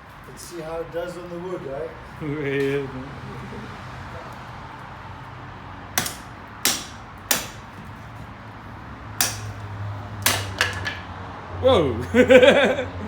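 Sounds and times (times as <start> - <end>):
knife chopping into wood: 6.0 - 7.8, 9.2 - 9.6, 10.2 - 11.0.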